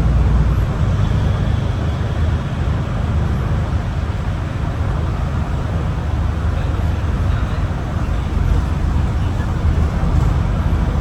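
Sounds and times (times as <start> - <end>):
bus diesel engine rumbling: 0.0 - 11.0
road and tyre noise: 0.0 - 11.0.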